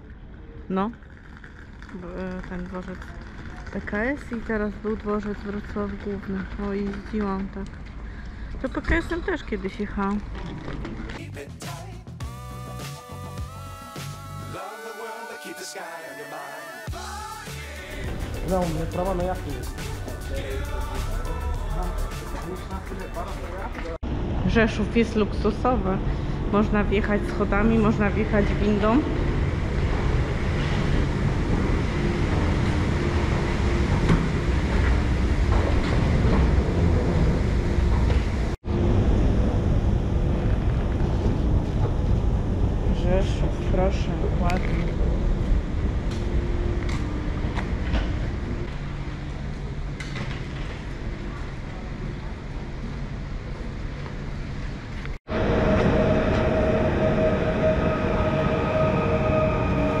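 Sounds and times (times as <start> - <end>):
train rumbling: 0.0 - 11.3, 16.9 - 60.0
high whine: 12.2 - 51.4, 55.0 - 60.0.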